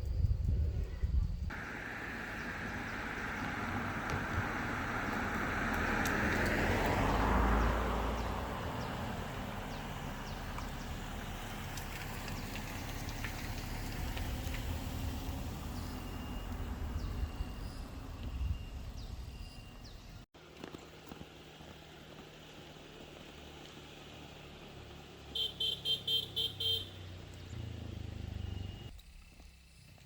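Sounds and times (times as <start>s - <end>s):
vehicle passing by: 1.5s - 19.2s.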